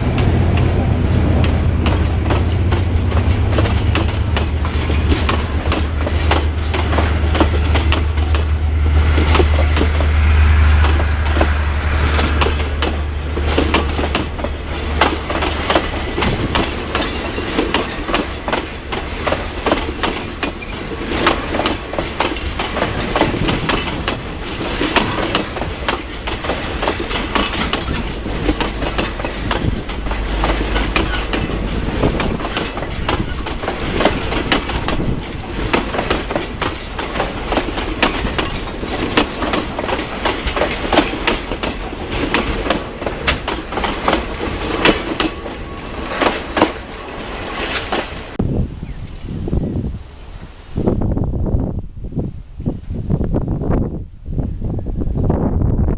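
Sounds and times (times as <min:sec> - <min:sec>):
train wheels clicking on track: 0:00.0 - 0:48.4
low engine drone: 0:08.1 - 0:14.9.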